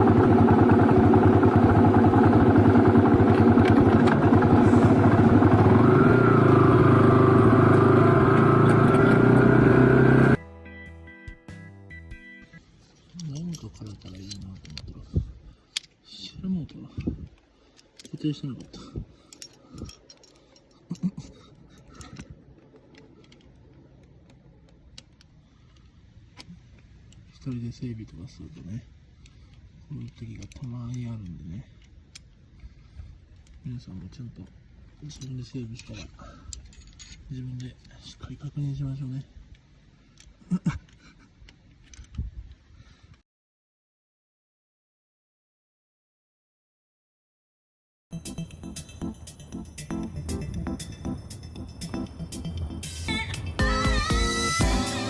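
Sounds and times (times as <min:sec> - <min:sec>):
motorcycle engine idling: 0:00.0 - 0:10.4
tools clicking and rattling: 0:12.9 - 0:27.6, 0:29.2 - 0:32.6, 0:34.4 - 0:38.0, 0:39.5 - 0:42.6.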